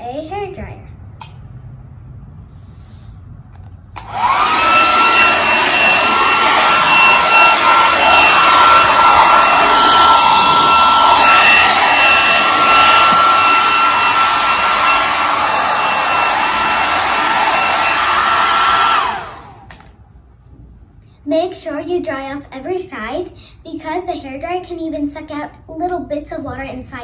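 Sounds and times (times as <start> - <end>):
hair dryer running: 4.0 - 19.9.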